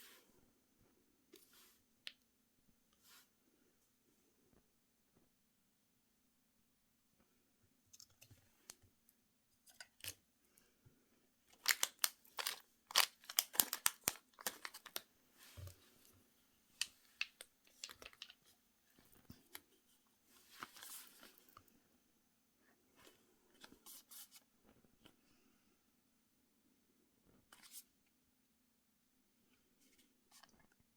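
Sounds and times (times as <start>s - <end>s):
packaging crinkling and tearing: 11.6s - 15.1s, 16.8s - 18.4s.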